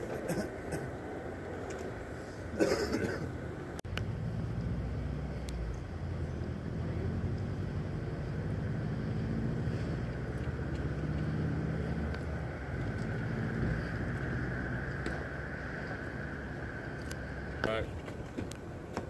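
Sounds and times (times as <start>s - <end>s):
high steady whine: 0.0s - 19.0s
car engine idling: 9.7s - 19.0s.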